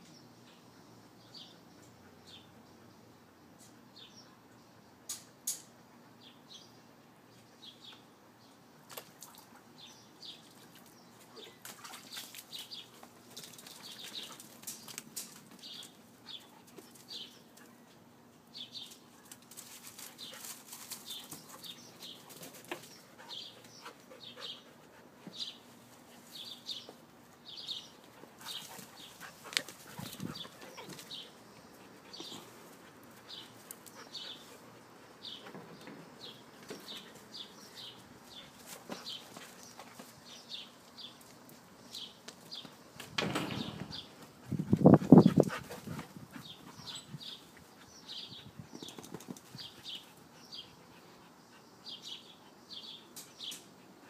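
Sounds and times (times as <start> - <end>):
puppies scuffling and rustling: 10.3 - 18.0, 18.6 - 51.4
sharp clicks and knocks: 43.0 - 44.1.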